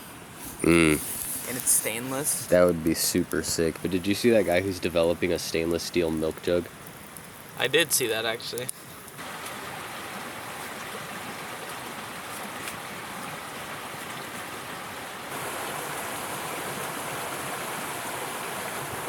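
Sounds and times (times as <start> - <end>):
rushing river water: 9.2 - 19.0.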